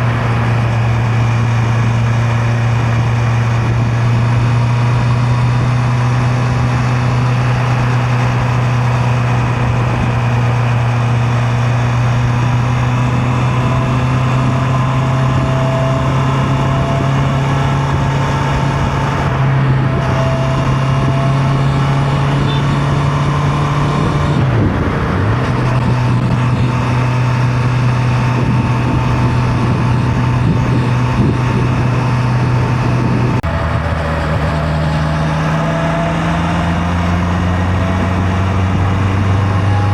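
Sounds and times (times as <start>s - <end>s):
motorcycle engine cruising: 0.0s - 39.9s
road noise: 0.0s - 39.9s
wind rushing: 12.6s - 39.6s.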